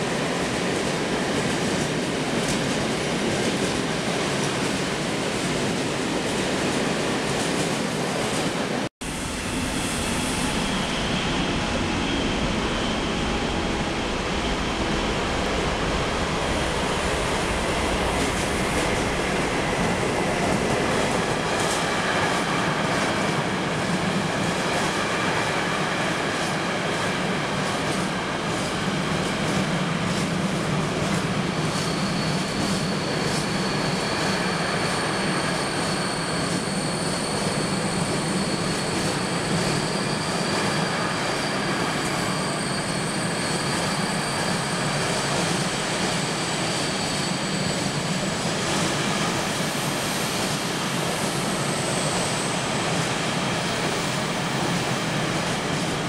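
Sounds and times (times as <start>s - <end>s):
train rolling on tracks: 0.0s - 56.0s
high-pitched wheel squeal: 31.6s - 49.3s.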